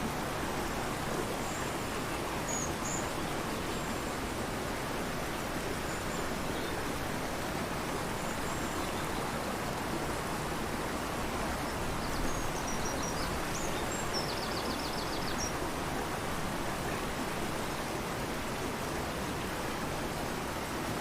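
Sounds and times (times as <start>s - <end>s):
rushing river: 0.0s - 21.0s
small bird singing: 12.0s - 15.5s.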